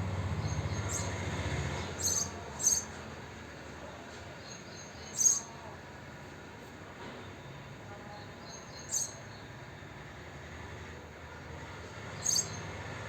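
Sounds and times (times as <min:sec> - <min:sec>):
sparrows chirping: 0:00.1 - 0:03.0, 0:04.3 - 0:05.6, 0:08.0 - 0:09.6, 0:12.1 - 0:12.8.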